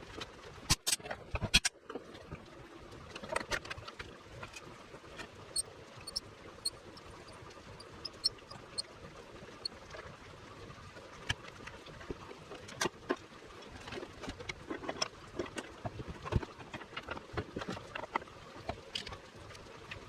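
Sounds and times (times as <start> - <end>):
small metallic clinks: 5.6 - 6.2, 8.0 - 8.6.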